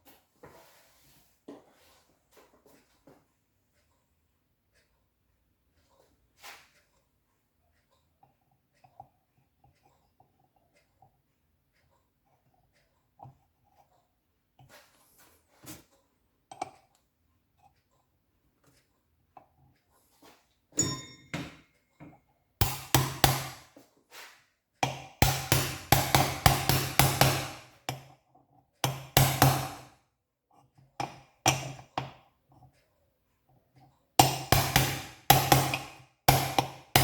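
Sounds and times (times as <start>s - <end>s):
ringing metallic knock: 20.8s - 21.7s
rapid hammer taps: 22.6s - 23.8s, 24.8s - 28.1s, 28.8s - 29.9s, 34.2s - 37.0s.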